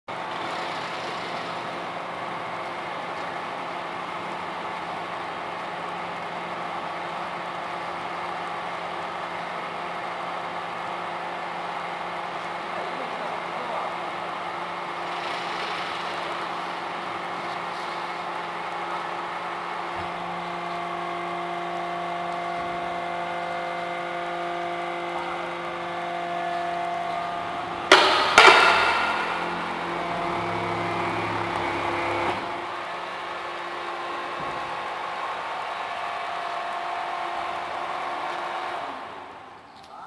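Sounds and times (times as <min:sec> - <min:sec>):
baler motor humming: 0:00.1 - 0:39.7
loud metallic clanks: 0:27.8 - 0:31.1.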